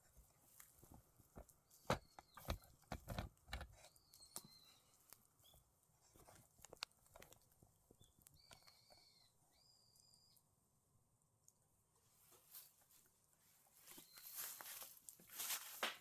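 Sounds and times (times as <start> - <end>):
sharp clicks and knocks: 1.4 - 3.8
bird whistling: 8.4 - 10.4.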